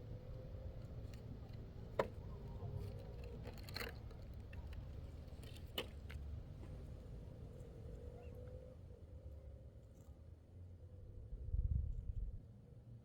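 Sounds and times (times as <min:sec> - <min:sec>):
low rumble with hum: 0:10.9 - 0:12.8.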